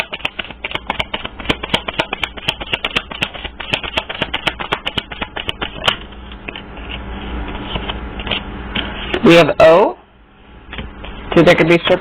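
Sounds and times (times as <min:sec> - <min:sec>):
cards being shuffled by hand: 0:00.0 - 0:08.4.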